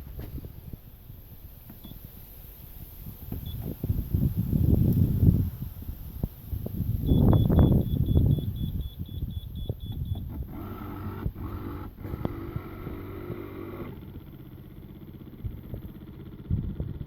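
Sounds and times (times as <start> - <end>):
outboard motor rumble: 6.2 - 17.0
autopilot beeping rapidly: 7.0 - 14.1
steady whirring: 9.8 - 17.0.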